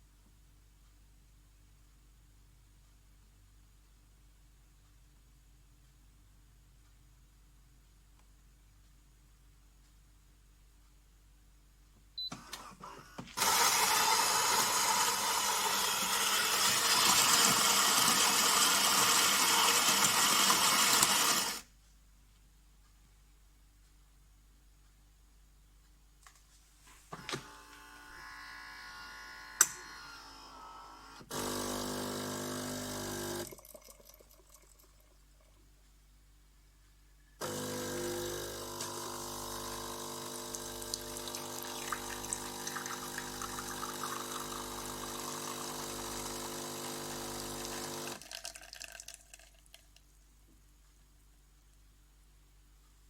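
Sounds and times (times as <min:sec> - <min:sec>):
coffee machine water pump: 0:12.4 - 0:21.7, 0:31.2 - 0:35.2, 0:37.4 - 0:49.8.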